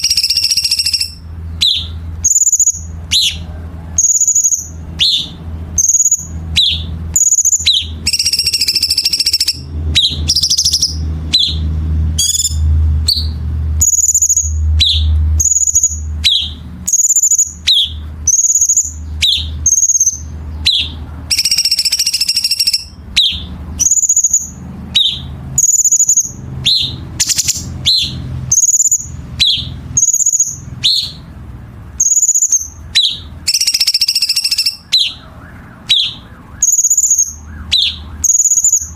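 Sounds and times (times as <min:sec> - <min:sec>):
bird calls with whistle: 0:00.0 - 0:31.3, 0:32.0 - 0:38.9.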